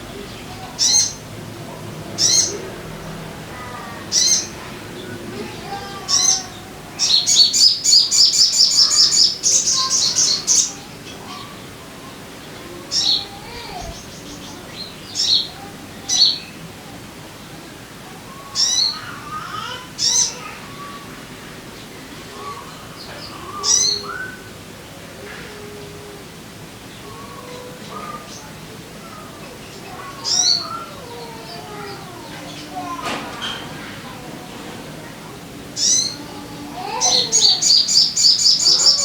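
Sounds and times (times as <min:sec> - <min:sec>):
bird high chirps: 0:36.8 - 0:39.0.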